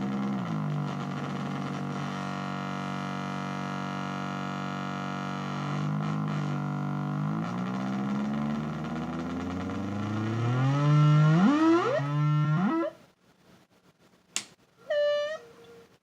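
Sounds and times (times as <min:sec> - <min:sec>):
distorted electronic drone: 0:00.0 - 0:13.0
sharp click: 0:14.3 - 0:14.6.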